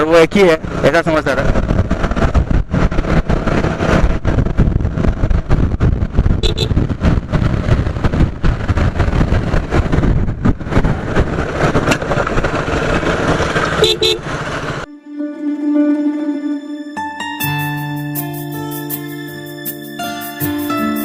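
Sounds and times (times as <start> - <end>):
road and traffic noise: 0.0 - 14.9
wind buffeting microphone: 0.4 - 14.9.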